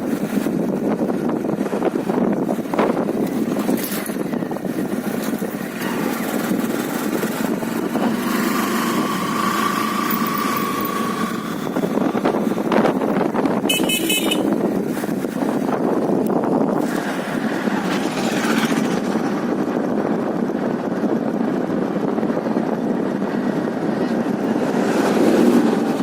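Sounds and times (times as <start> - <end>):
motorcycle riding on road: 0.0 - 26.0
wind noise: 0.0 - 26.0
high tone: 13.7 - 14.5.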